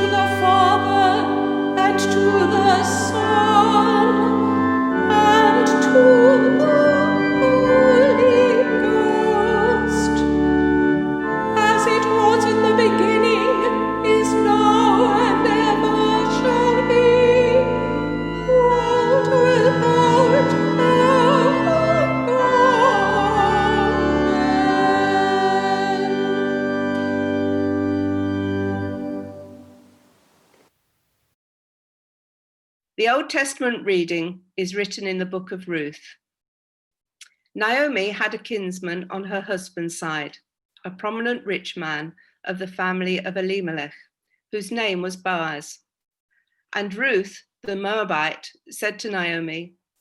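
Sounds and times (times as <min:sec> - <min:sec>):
choir singing chant: 0:00.0 - 0:27.6
pipe organ: 0:00.0 - 0:30.5.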